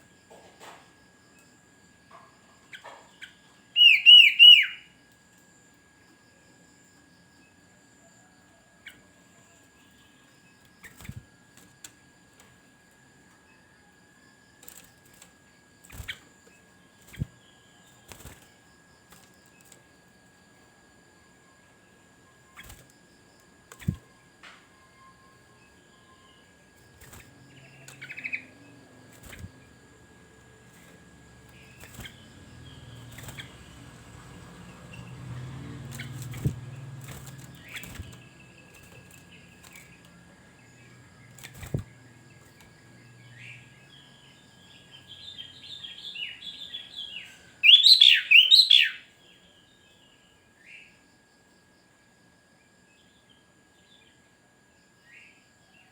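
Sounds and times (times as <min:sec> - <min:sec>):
bird chirping: 0:02.7 - 0:04.9, 0:27.5 - 0:29.5, 0:31.5 - 0:42.1, 0:42.8 - 0:50.0
faint steady high tone: 0:23.8 - 0:33.4.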